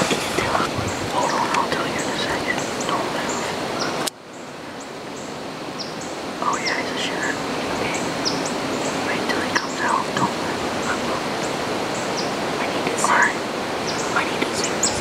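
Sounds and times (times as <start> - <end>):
small birds chirping: 0.0 - 15.0
steady hiss: 0.0 - 15.0.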